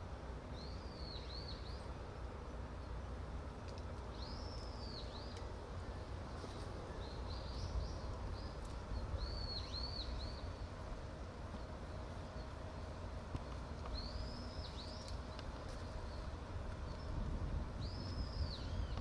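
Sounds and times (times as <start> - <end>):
low outdoor rumble: 0.0 - 19.0
bird chirping: 0.5 - 1.9, 4.1 - 6.0, 6.8 - 10.7, 13.9 - 17.2, 17.8 - 19.0.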